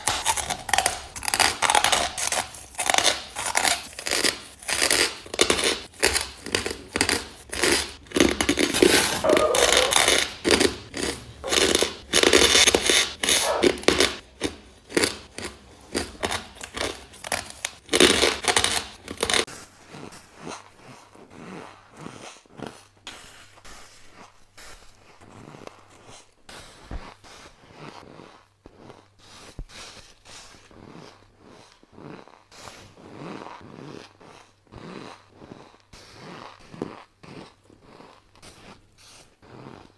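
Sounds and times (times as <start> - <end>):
ice being chewed: 0.0 - 22.9, 30.5 - 39.9.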